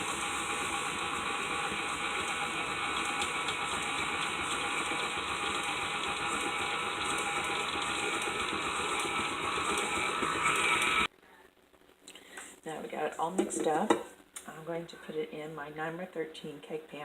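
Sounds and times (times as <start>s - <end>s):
electric hand mixer running: 0.0s - 11.1s.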